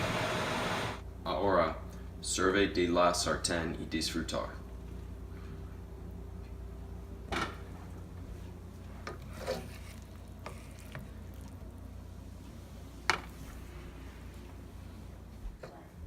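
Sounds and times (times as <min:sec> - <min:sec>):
steady low hum: 0:00.0 - 0:16.0
utensil scraping a pan: 0:09.0 - 0:11.1.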